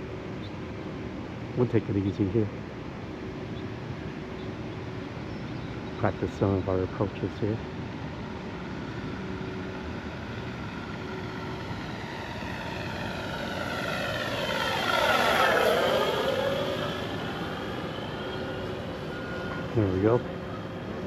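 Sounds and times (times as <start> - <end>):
model plane propeller and engine: 5.4 - 21.0.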